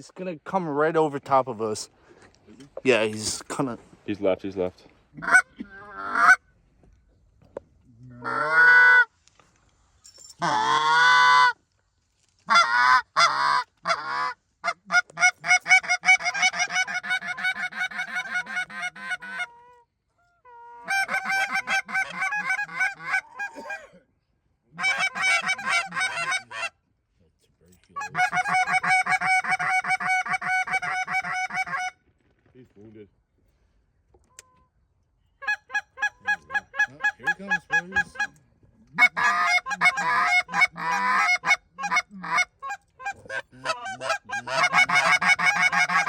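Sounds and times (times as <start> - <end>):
goose honking: 5.2 - 6.4, 8.2 - 9.1, 10.4 - 11.6, 12.5 - 19.6, 20.5 - 23.8, 24.8 - 26.7, 28.0 - 32.0, 39.0 - 46.0.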